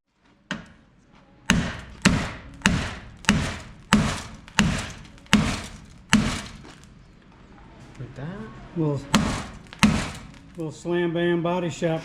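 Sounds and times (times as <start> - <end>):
hammer striking sheet metal: 1.5 - 6.7, 9.2 - 10.4.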